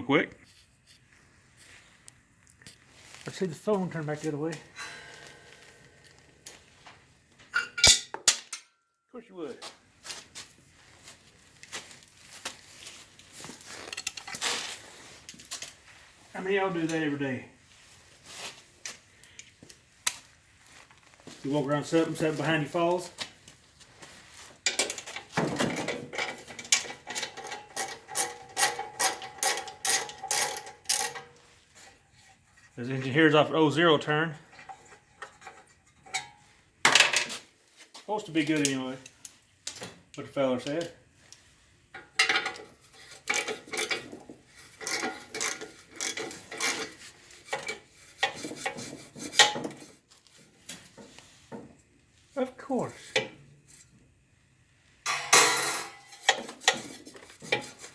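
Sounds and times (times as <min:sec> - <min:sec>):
tool handling clatter: 0:07.4 - 0:08.7, 0:11.0 - 0:15.9, 0:24.0 - 0:32.4, 0:34.4 - 0:37.5, 0:40.6 - 0:51.8, 0:55.0 - 0:57.9.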